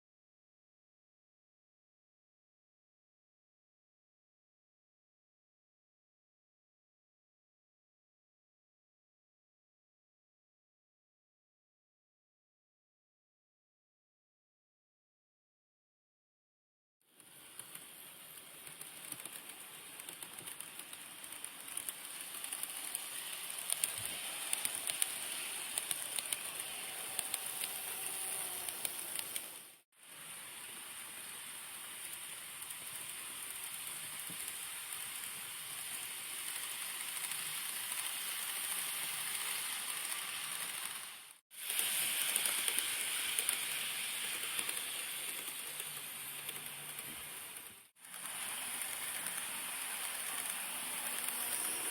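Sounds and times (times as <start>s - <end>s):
small clicks from rails: 17.1s - 29.8s, 31.2s - 51.9s
model train motor hiss: 17.2s - 51.9s.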